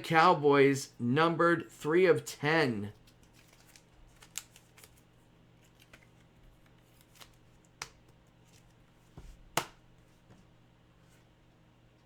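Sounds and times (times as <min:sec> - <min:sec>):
faint hum: 0:00.0 - 0:12.0
trading cards clicking and flicking: 0:03.0 - 0:05.0.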